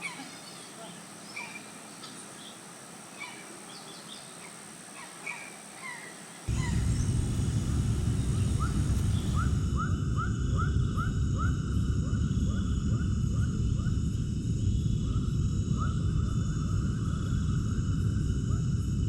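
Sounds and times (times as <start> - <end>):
animal chirping: 0.0 - 2.5, 3.1 - 6.9
steady low rumble: 6.5 - 19.0.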